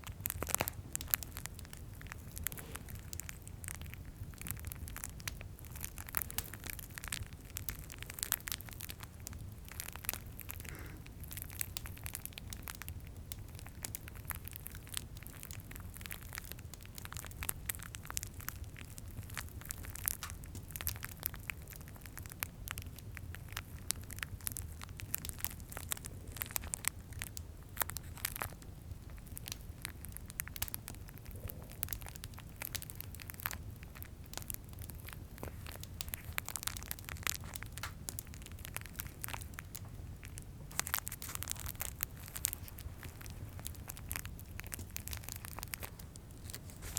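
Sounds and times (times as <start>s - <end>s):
fireplace rumble: 0.0s - 46.9s
plastic wrappers crinkling: 35.0s - 46.9s.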